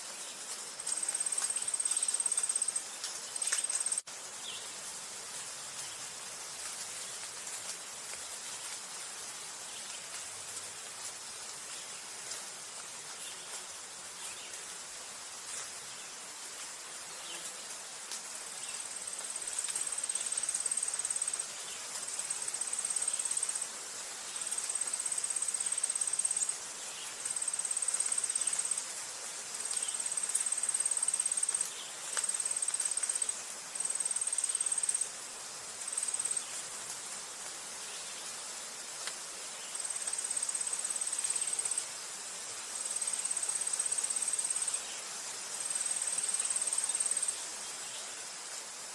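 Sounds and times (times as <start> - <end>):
steady background hiss: 0.0 - 48.9
high thin insect trill: 0.2 - 4.6, 18.6 - 23.7, 24.3 - 36.8, 39.2 - 42.1, 42.7 - 48.6.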